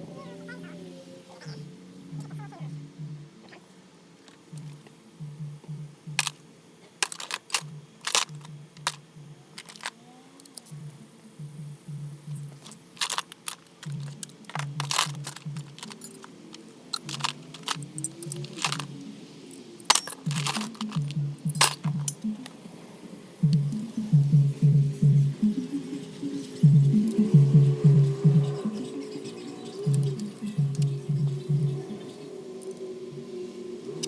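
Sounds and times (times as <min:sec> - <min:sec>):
music with a pulsing beat: 0:02.1 - 0:03.4, 0:04.5 - 0:09.3, 0:10.8 - 0:13.2, 0:23.4 - 0:33.4
tools and metal parts clinking: 0:06.2 - 0:06.4, 0:07.0 - 0:09.0, 0:09.6 - 0:10.8, 0:12.6 - 0:19.0, 0:19.6 - 0:22.4.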